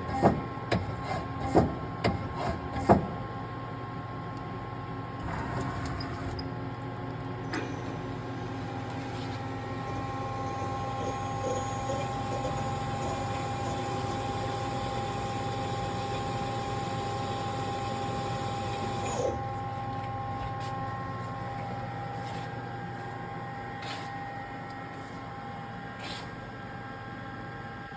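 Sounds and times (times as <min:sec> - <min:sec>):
steady machine whine: 0:07.5 - 0:27.9
lathe hum: 0:08.4 - 0:22.4.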